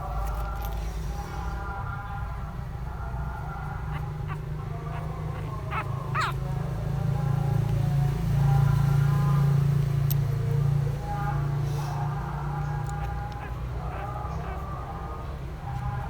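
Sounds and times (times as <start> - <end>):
puppy yelping: 3.6 - 6.6, 12.8 - 15.2.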